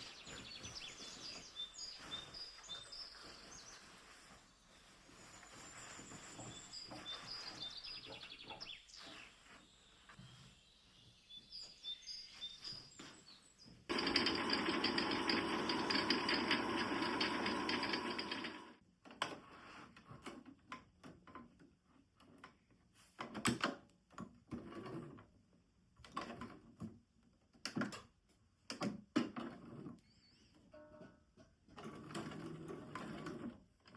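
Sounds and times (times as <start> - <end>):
rustles: 0.0 - 13.9
sewing machine stitching: 13.9 - 18.8.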